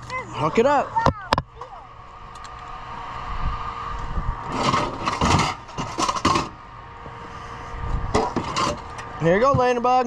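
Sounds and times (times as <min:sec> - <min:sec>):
toy wagons rattling and scraping: 0:04.5 - 0:06.6, 0:08.2 - 0:10.0.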